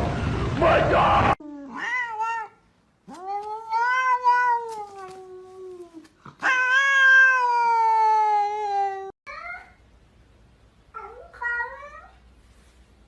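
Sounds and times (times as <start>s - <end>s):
cat yowling: 1.7s - 5.3s, 6.4s - 9.7s.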